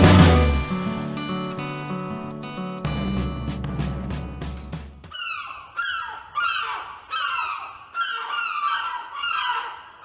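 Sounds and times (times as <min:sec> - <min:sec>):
birds calling: 0:04.9 - 0:10.0.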